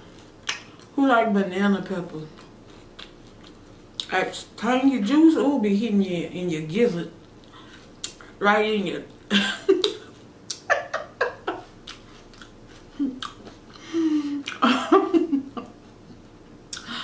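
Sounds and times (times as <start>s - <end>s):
person chewing salad: 2.3s - 4.1s, 7.2s - 8.4s, 9.1s - 13.8s.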